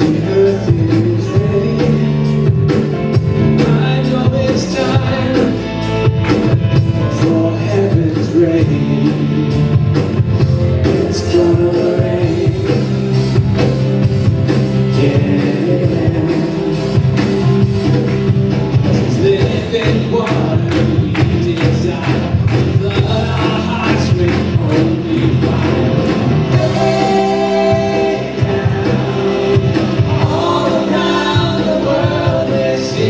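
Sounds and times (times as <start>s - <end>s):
rock band playing: 0.0s - 33.0s
voices singing: 19.0s - 33.0s.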